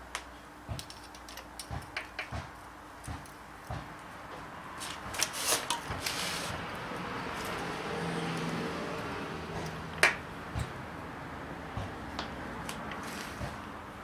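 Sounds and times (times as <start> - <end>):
loud scrapes: 5.2 - 6.6.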